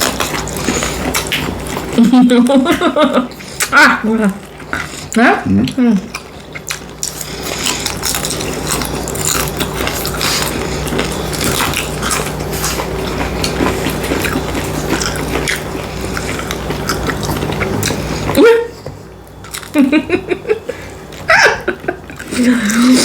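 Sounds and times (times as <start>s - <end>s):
chewing and biting food: 0.0s - 2.1s, 3.3s - 18.4s, 19.0s - 19.9s
faint steady hum: 0.0s - 23.0s.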